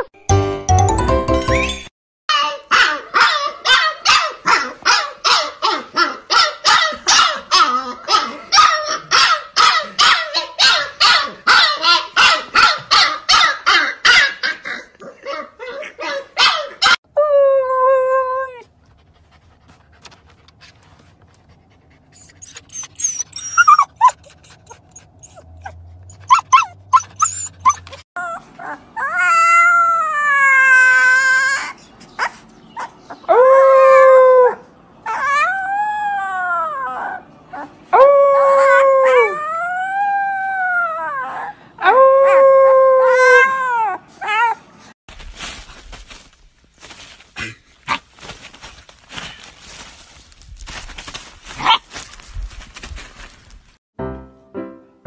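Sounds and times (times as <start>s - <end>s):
puppy howling: 26.2s - 31.8s, 33.3s - 44.6s.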